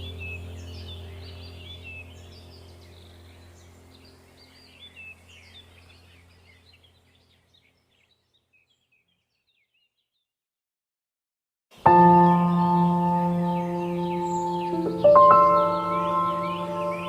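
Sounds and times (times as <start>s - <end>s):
low music drone: 0.0s - 6.4s, 11.8s - 17.0s
small birds chirping: 0.0s - 10.3s, 11.8s - 17.0s.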